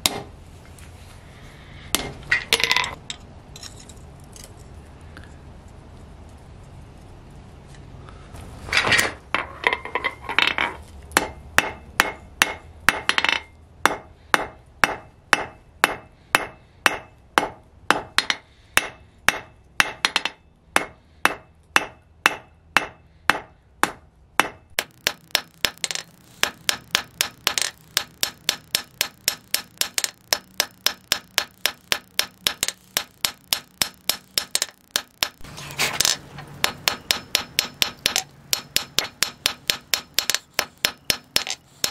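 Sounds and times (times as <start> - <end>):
hammer striking steel on anvil: 0.0 - 0.3, 11.2 - 41.9.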